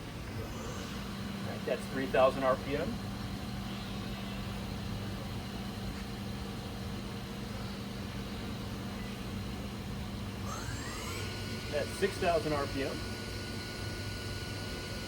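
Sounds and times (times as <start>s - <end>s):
machine spindle humming and whining: 0.0s - 15.0s.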